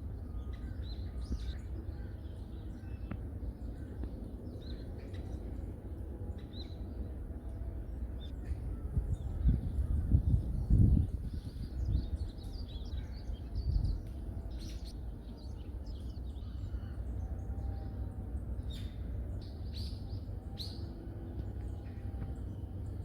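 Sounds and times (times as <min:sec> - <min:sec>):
songbirds chirping: 0:00.0 - 0:23.0
steady low rumble: 0:00.0 - 0:23.0.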